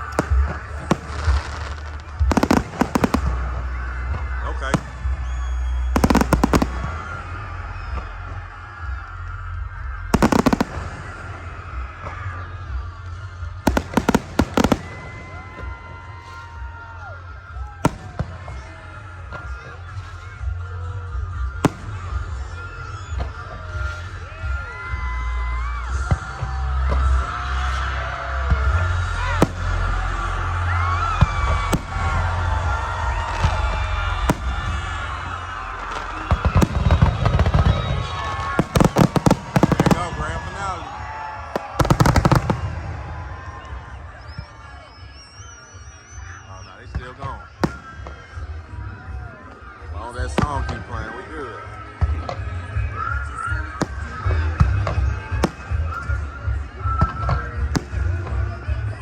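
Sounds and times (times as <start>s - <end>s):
fireworks bangs: 0.0s - 8.2s, 10.0s - 17.0s, 17.7s - 20.2s, 21.4s - 24.1s, 28.4s - 45.5s, 46.8s - 50.9s, 52.0s - 59.0s
music playing: 0.0s - 59.0s
firework pops and crackles: 4.8s - 7.0s, 13.7s - 16.6s, 33.1s - 35.1s, 35.8s - 44.4s.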